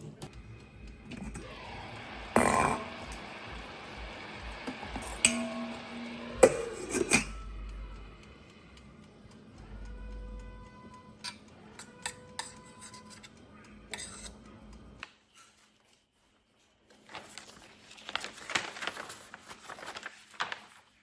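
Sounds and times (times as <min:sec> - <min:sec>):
dishes and utensils clattering: 0:02.3 - 0:03.3, 0:04.8 - 0:07.4.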